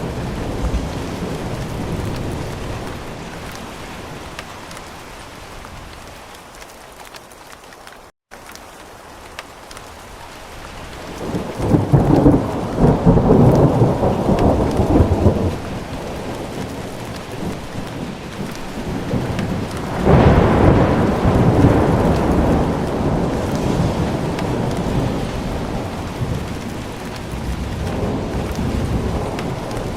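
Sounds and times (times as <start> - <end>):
thunder rumbling: 0.0 - 4.8, 10.8 - 29.9
steady rain: 0.0 - 29.9.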